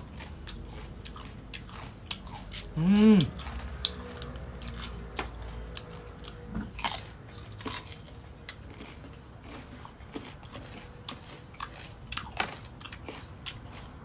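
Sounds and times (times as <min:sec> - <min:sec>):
crunching and chewing mango: 0:00.0 - 0:14.0.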